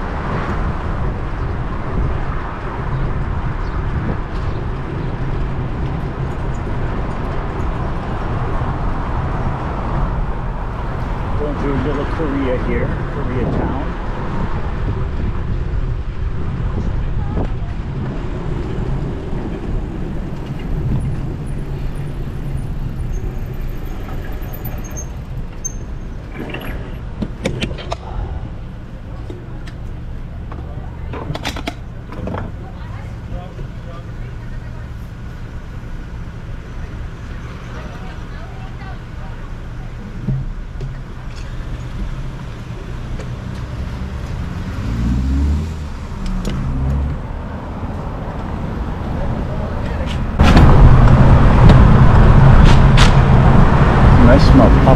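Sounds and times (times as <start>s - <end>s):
wind rumble on microphone: 0.0s - 24.6s, 45.4s - 54.9s
city street traffic: 0.0s - 54.9s
car engine revving: 43.0s - 54.9s.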